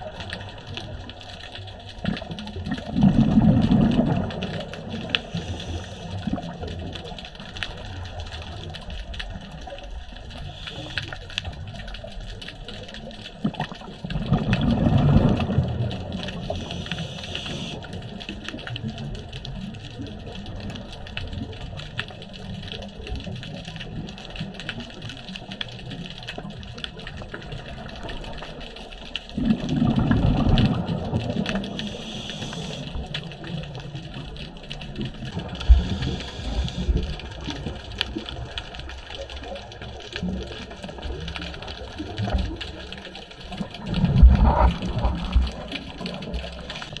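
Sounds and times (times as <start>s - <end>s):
bubbly exhalations underwater: 1.9s - 8.8s, 13.3s - 19.2s, 29.3s - 47.0s
regulator hiss of inhaling: 5.0s - 6.4s, 10.3s - 11.5s, 16.4s - 17.9s, 31.7s - 33.1s, 35.6s - 37.1s.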